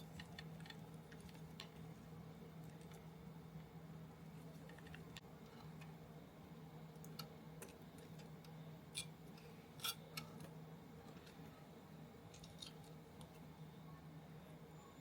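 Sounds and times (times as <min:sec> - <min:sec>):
small parts and tools clicking: 0:00.0 - 0:01.8
steady low hum: 0:00.0 - 0:15.0.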